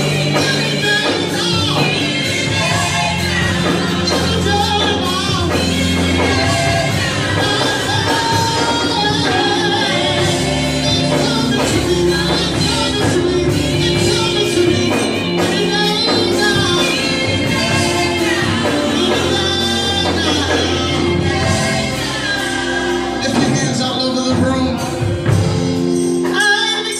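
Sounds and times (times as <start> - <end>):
band playing gospel music with singing: 0.0 - 26.9.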